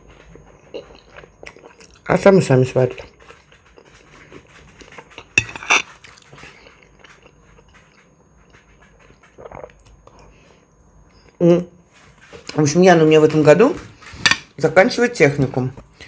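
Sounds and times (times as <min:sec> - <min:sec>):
person chewing and smacking lips: 0:00.6 - 0:02.1, 0:03.0 - 0:10.3.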